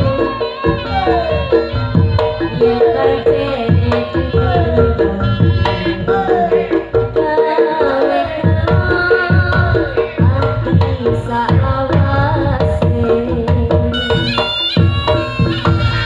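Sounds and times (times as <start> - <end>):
gamelan melody with sliding notes: 0.0 - 16.0.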